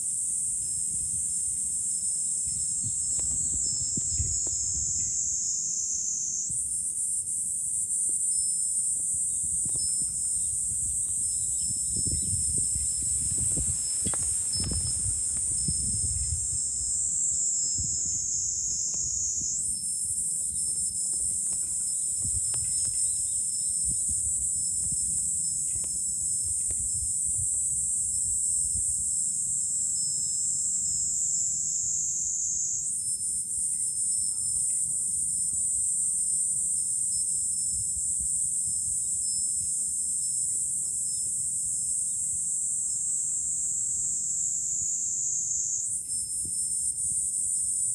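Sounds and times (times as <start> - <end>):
cicadas buzzing: 0.1 - 7.7, 8.4 - 28.4
low wind rumble: 2.8 - 5.2, 9.6 - 18.6.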